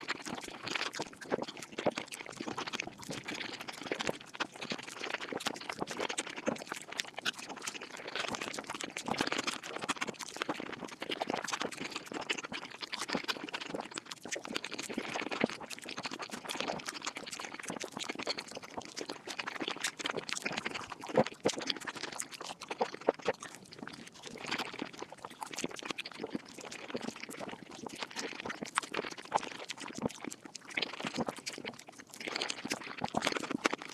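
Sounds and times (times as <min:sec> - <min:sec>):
fast chewing and mouth clicks: 0:00.0 - 0:33.9.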